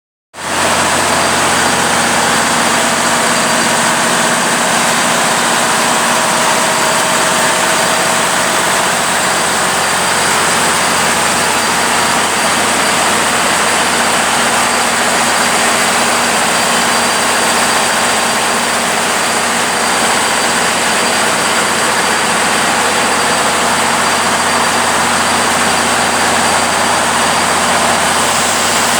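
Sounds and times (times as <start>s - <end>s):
engine-room machinery drone: 0.4s - 28.9s.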